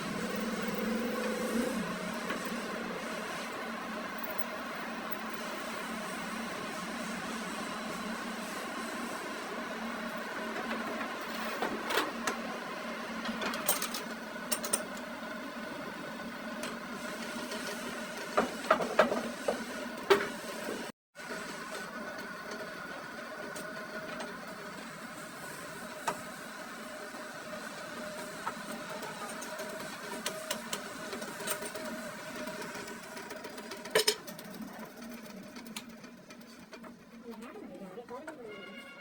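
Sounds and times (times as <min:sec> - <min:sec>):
metal lathe humming: 0:00.0 - 0:11.5.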